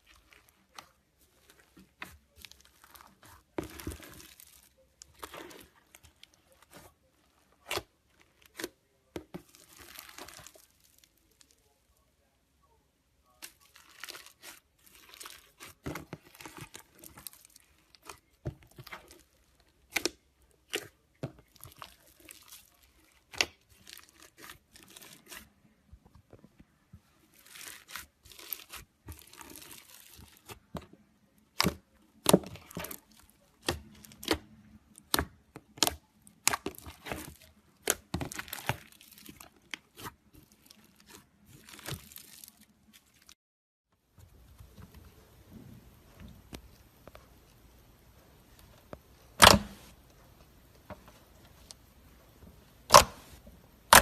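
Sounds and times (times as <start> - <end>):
slime crackling and popping: 1.4 - 8.7, 9.3 - 11.6, 13.4 - 25.5, 27.3 - 30.7, 31.4 - 43.4.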